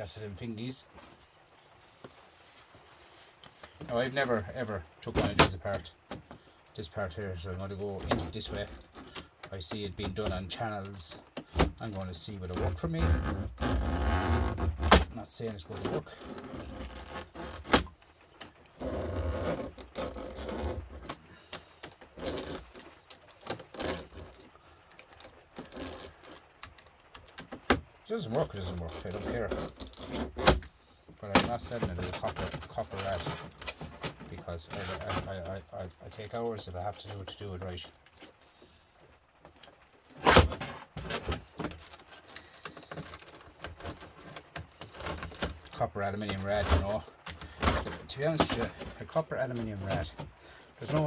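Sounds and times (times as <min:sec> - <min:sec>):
metal scraping and rubbing: 0:10.1 - 0:24.6, 0:28.1 - 0:38.5, 0:39.6 - 0:51.0.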